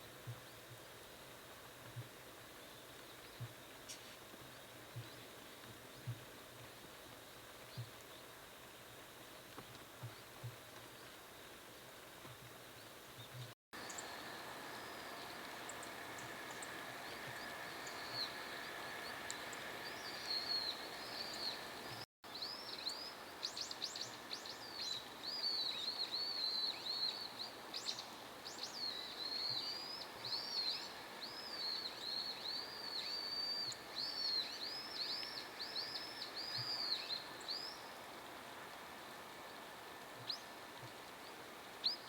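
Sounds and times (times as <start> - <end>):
faint steady hiss: 0.0 - 42.0
songbird twittering: 13.3 - 37.9.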